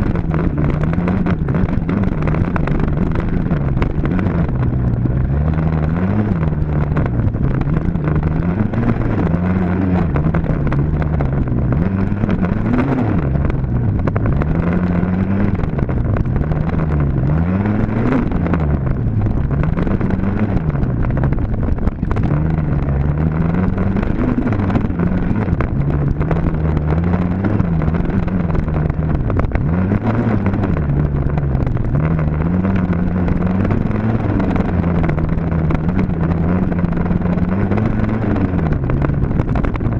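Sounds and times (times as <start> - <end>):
dirt bike engine revving: 7.6 - 15.8.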